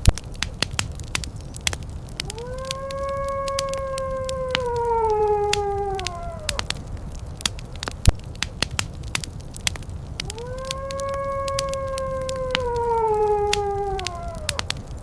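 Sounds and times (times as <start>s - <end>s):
fireplace crackling and popping: 0.0s - 15.0s
wolf howling: 2.0s - 7.5s, 10.2s - 15.0s.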